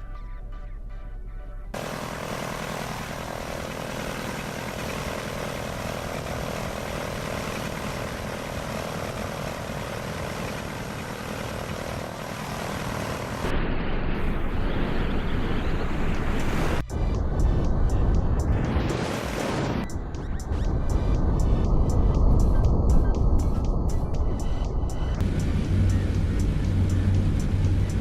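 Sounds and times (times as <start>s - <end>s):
music: 0.0s - 1.8s, 16.8s - 28.0s
steady rushing noise: 1.8s - 19.9s
aircraft engine drone: 1.8s - 28.0s.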